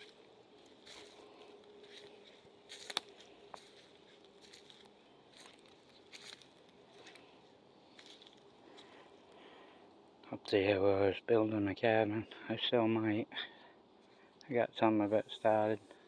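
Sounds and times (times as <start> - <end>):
loud footstep crunch: 0.0 - 7.2
footsteps on forest floor: 0.0 - 9.1.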